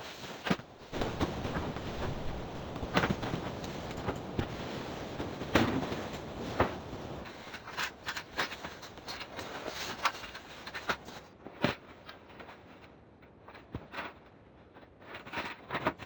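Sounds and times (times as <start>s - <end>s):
rushing wind: 0.6s - 7.5s
irregular knocks and clatters: 0.9s - 7.3s.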